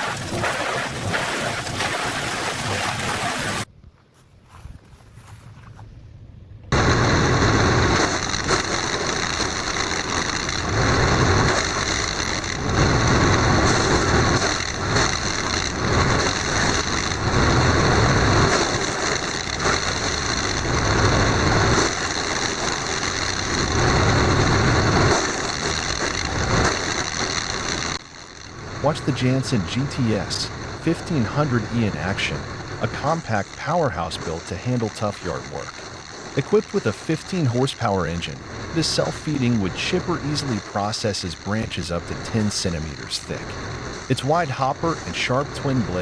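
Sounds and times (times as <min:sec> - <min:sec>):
high-pitched whine: 0:00.0 - 0:03.7, 0:06.7 - 0:46.0
wood chipper engine: 0:00.0 - 0:03.7, 0:06.8 - 0:46.0.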